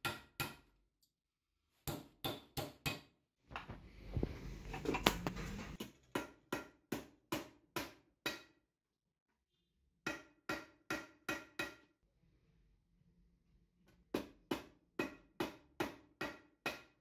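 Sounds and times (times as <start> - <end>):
rubbing or scraping noise: 4.0 - 5.8.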